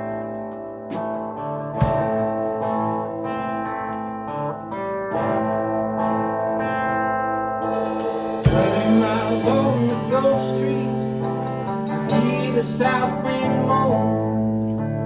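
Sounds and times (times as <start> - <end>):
electric guitar lead notes: 0.0 - 15.0
live country-rock band: 0.0 - 15.0
sharp drum hit: 1.8 - 2.5, 7.6 - 12.5.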